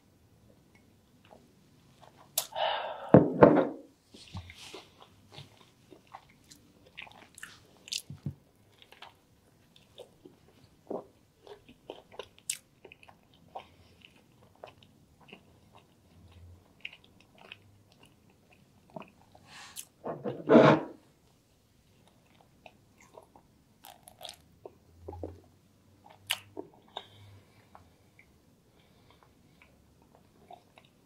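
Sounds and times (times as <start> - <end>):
chewing food: 4.4 - 19.9, 22.0 - 31.0.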